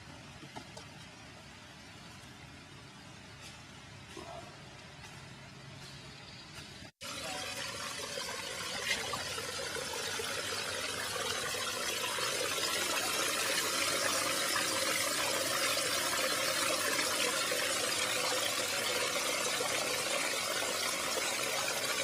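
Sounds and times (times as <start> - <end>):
running water rushing: 7.0 - 22.0.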